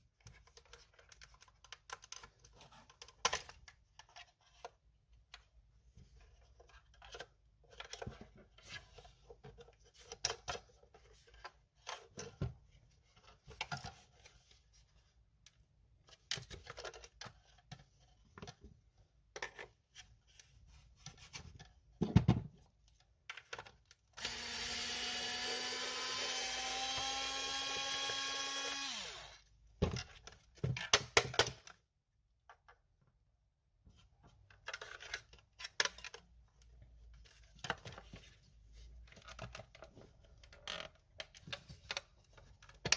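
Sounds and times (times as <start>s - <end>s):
small electric motor running: 24.2s - 29.4s.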